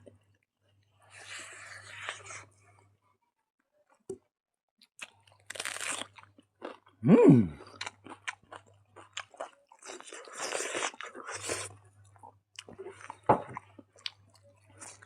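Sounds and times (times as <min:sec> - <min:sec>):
crunching and chewing food: 0:04.8 - 0:15.0.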